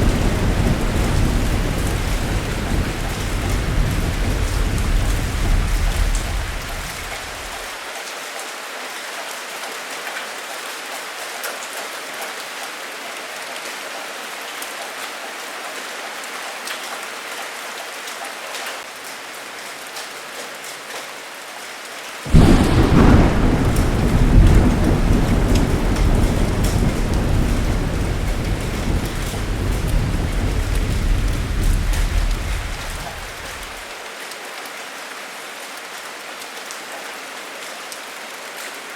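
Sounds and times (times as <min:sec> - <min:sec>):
loud thunderclap: 0:00.0 - 0:07.7, 0:22.3 - 0:33.8
thunder rumbling: 0:00.0 - 0:07.7, 0:22.3 - 0:33.9
heavy rain pattering: 0:00.0 - 0:07.8, 0:18.8 - 0:34.2.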